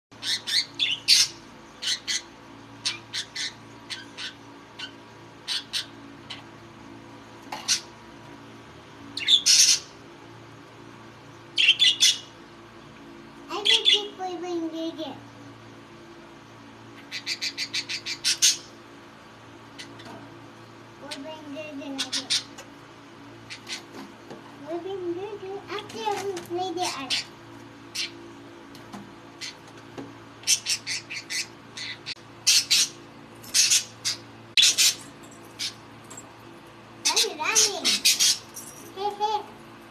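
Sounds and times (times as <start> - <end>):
budgerigars chirping and squawking: 0.2 - 6.5, 7.6 - 8.0, 9.2 - 10.0, 11.6 - 12.3, 17.0 - 18.8, 19.7 - 20.1, 21.9 - 22.6, 23.4 - 24.0, 26.8 - 27.3, 27.9 - 28.2, 29.4 - 29.7, 30.4 - 35.0, 35.6 - 35.8, 37.0 - 38.5.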